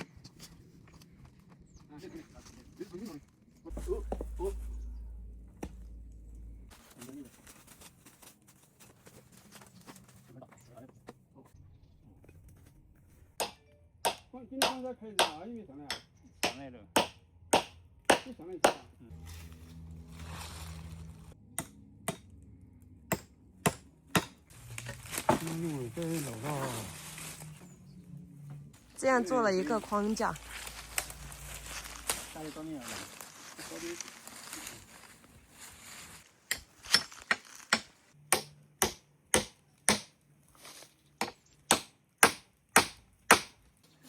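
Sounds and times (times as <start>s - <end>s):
low steady hum: 3.7s - 8.2s
hand tool striking timber: 13.4s - 18.9s, 21.6s - 22.3s, 23.1s - 25.5s, 36.5s - 40.1s, 41.2s - 43.6s.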